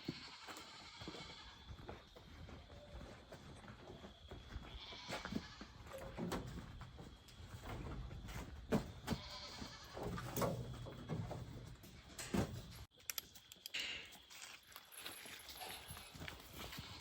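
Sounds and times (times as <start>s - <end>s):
goats bleating: 0.0s - 1.7s, 4.6s - 6.0s, 9.1s - 10.2s.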